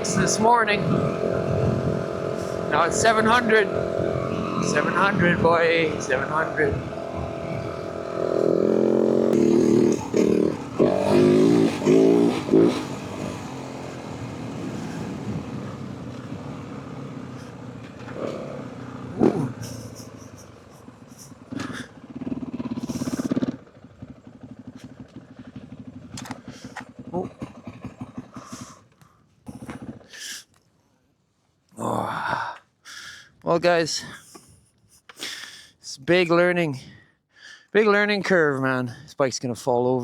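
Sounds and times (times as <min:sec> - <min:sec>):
motorcycle engine revving: 0:00.0 - 0:30.1.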